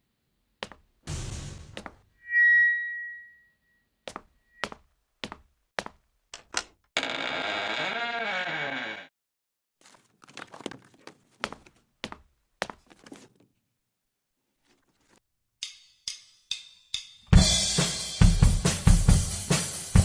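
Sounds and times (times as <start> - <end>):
rock drum kit playing: 1.1 - 1.9, 17.3 - 20.0.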